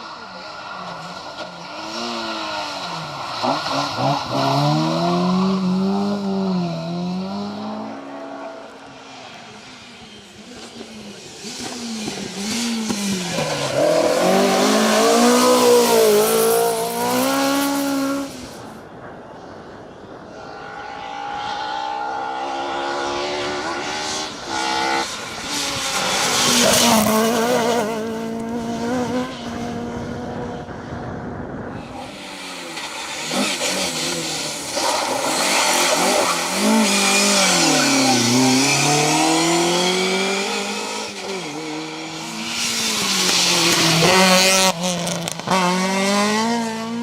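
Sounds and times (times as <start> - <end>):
rally car engines revving: 0.0 - 18.8, 20.3 - 31.0, 31.7 - 47.0.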